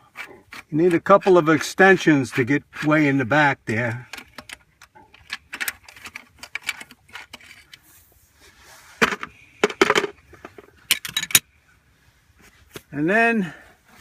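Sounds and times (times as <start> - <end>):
socket wrench clinking on metal: 10.9 - 11.5.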